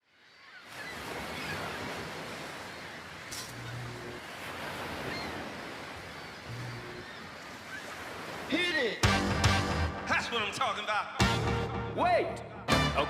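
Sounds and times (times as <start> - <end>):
sea waves and surf: 0.0 - 13.0.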